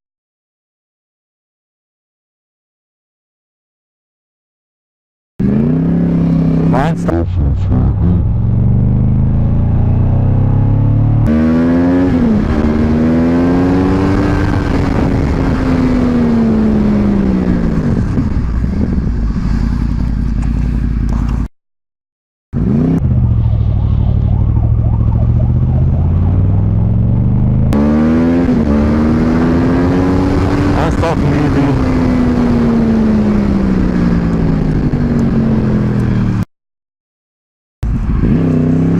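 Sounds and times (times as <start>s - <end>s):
motorcycle engine running hard: 5.4s - 21.5s, 24.2s - 36.4s.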